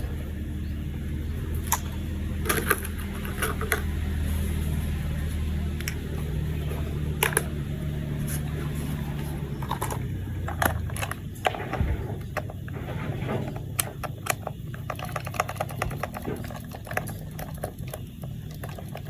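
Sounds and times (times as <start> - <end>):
plastic toy parts clicking: 1.6 - 3.9, 7.2 - 7.5, 13.7 - 19.0.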